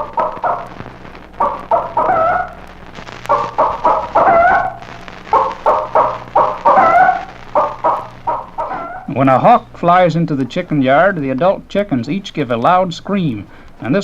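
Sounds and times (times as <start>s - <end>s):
chicken alarm clucks: 0.0s - 0.7s, 1.4s - 2.6s, 3.3s - 9.1s
low hum: 0.0s - 14.0s.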